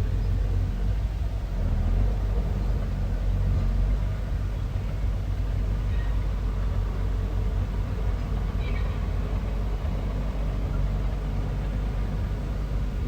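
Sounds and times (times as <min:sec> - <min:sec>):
bulldozer diesel engine rumbling: 0:00.0 - 0:13.0.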